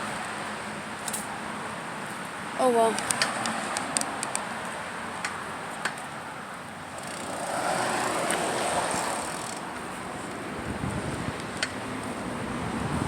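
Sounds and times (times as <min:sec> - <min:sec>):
bicycle tyre and air rush: 0:06.9 - 0:13.0.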